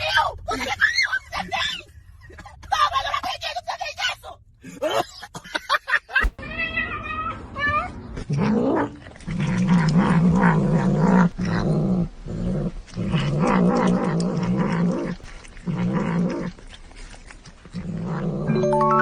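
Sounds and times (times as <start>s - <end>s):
pet animal growling: 8.2s - 18.6s.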